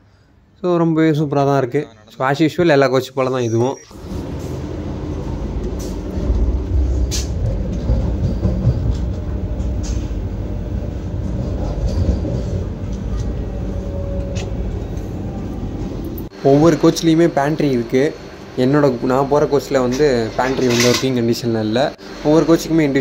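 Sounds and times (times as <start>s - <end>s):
train rumbling: 3.8s - 21.0s.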